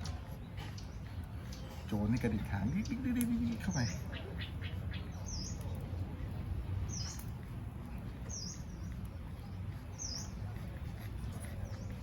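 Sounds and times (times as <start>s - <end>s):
bird chirping: 0.3s - 5.9s, 8.2s - 10.5s.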